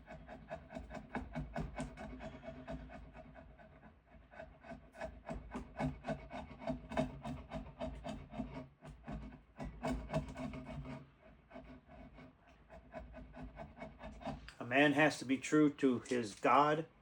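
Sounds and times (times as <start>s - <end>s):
hand tool scraping wood: 0.0s - 16.8s.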